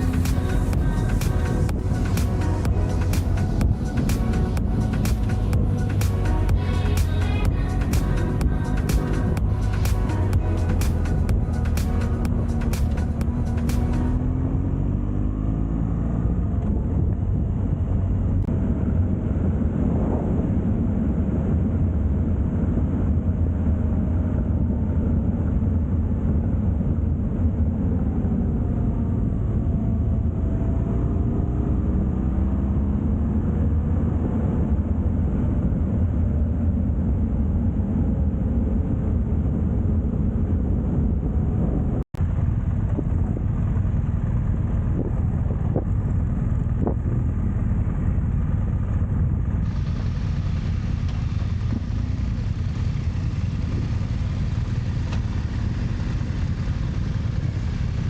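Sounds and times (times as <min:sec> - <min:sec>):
motorcycle engine: 0:00.0 - 0:18.8, 0:42.2 - 0:58.0
wind rush on microphone: 0:16.3 - 0:58.0.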